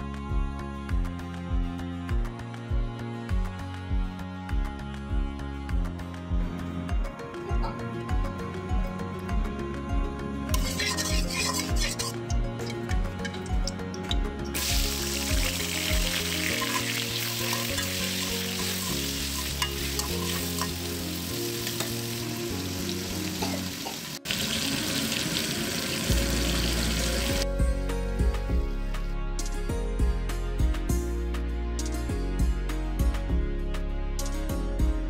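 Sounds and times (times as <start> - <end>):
potatoes sizzling in oil: 10.6 - 12.1, 14.6 - 27.4.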